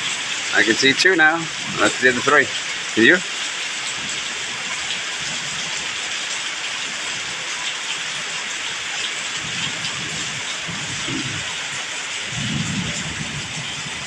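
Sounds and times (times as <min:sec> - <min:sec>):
raindrops ticking: 0:00.0 - 0:06.8
heavy rain hissing: 0:00.0 - 0:14.0.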